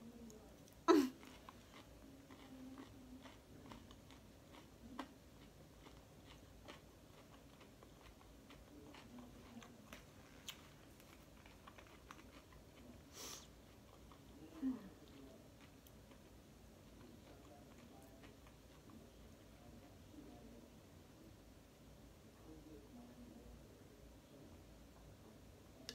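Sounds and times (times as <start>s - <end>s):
chewing salad crunches: 0.6s - 13.0s, 15.0s - 19.2s.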